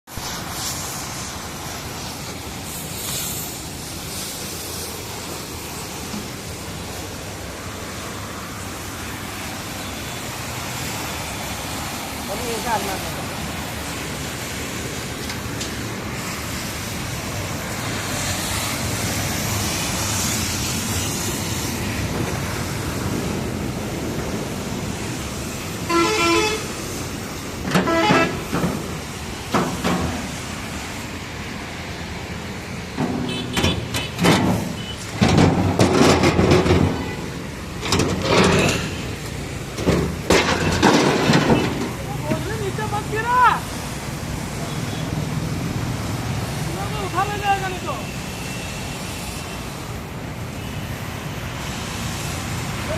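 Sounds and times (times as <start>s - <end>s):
vehicle traffic: 0.0s - 52.9s
loud bursts of noise: 0.1s - 52.9s
horn warbling toots: 25.9s - 26.7s.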